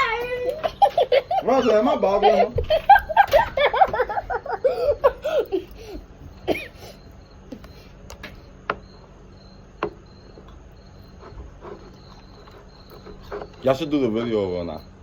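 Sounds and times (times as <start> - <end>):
girls laughing: 0.0 - 7.6.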